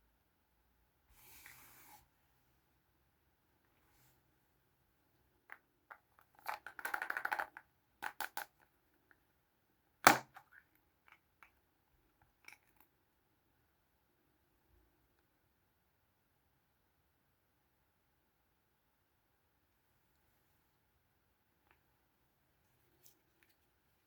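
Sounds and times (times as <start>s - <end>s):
plastic toys clicking: 6.3s - 8.6s.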